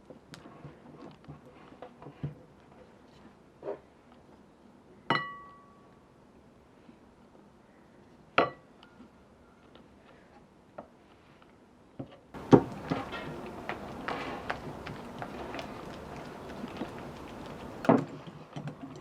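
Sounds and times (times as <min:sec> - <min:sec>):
clatter and scraping: 0:12.4 - 0:19.0.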